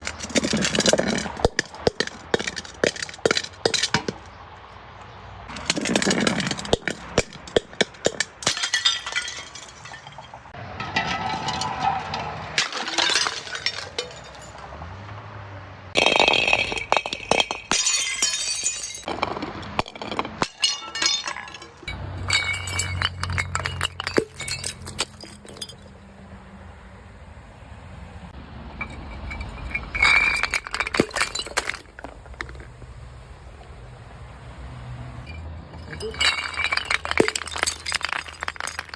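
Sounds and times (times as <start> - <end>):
glass bottles crushed and shattering: 0.0 - 4.2, 5.6 - 14.6, 16.0 - 25.9, 28.8 - 32.7, 35.7 - 38.9.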